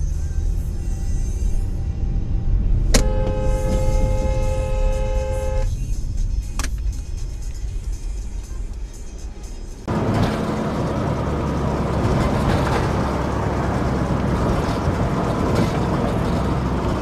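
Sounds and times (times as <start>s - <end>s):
car rumbling on road: 0.0s - 17.0s
car horn blaring: 2.9s - 5.8s.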